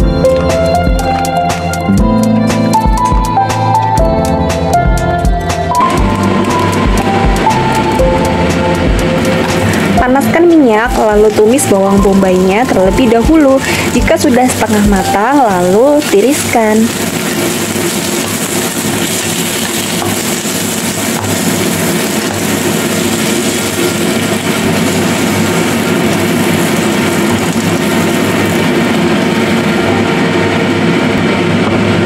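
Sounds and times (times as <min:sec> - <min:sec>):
low mechanical hum: 0:04.1 - 0:32.0
onions sizzling in hot oil: 0:05.8 - 0:30.4
spatula stirring in a wok: 0:12.8 - 0:28.7.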